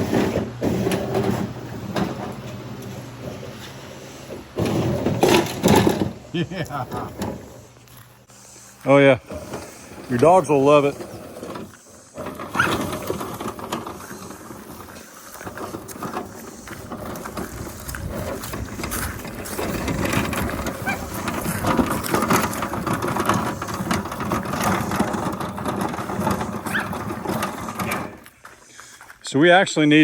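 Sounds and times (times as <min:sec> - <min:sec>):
electric wheel motors whirring: 0:00.0 - 0:28.3
tires crackling over ground: 0:08.8 - 0:30.0.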